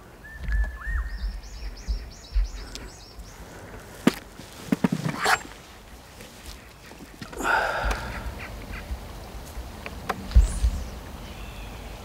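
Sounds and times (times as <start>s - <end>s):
whistled bird note: 0.2s - 2.5s
high bird chirps: 0.2s - 3.4s.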